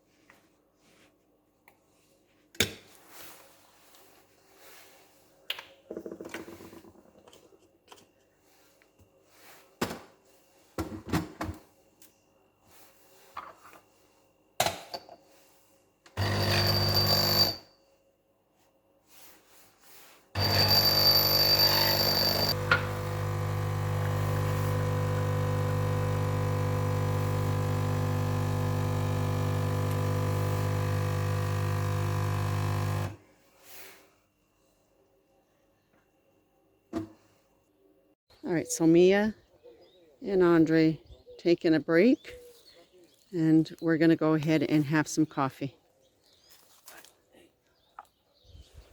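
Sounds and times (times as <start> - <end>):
espresso machine pump buzzing: 16.2 - 17.6, 20.4 - 33.2.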